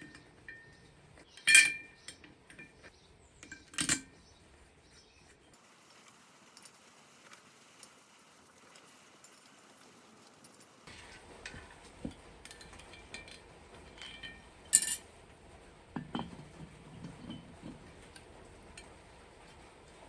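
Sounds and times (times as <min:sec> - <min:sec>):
metal parts and tools clinking: 0:01.4 - 0:02.8, 0:08.6 - 0:10.9, 0:12.5 - 0:15.0.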